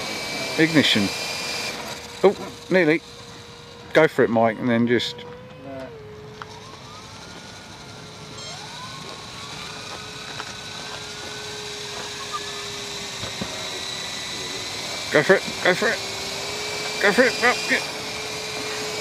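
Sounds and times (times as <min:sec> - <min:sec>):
rc helicopter motor whining: 0:00.0 - 0:19.0.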